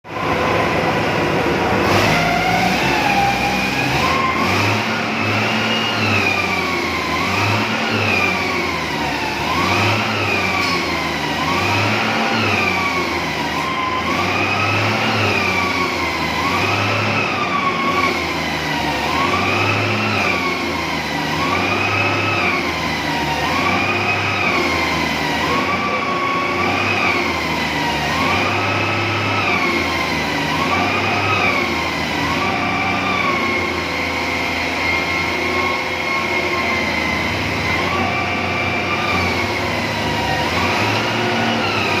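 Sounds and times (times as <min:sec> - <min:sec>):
wailing siren: 0:00.0 - 0:01.1, 0:01.7 - 0:42.0.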